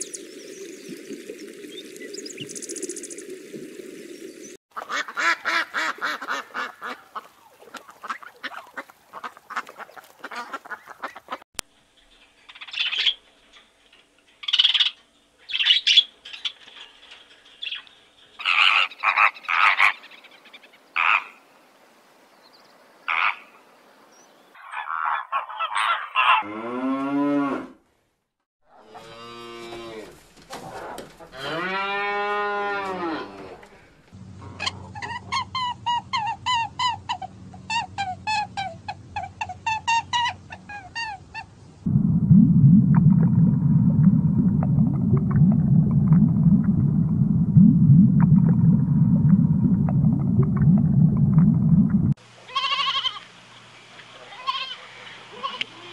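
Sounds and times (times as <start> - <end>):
ducks calling: 4.7 - 11.4
cows mooing: 28.7 - 30.2, 31.2 - 33.9.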